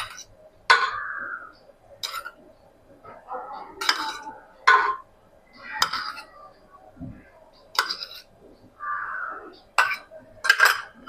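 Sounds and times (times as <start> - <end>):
spoon clinking against dishes: 2.0 - 2.4, 3.8 - 5.1, 5.8 - 6.4, 7.7 - 8.3, 9.8 - 11.0.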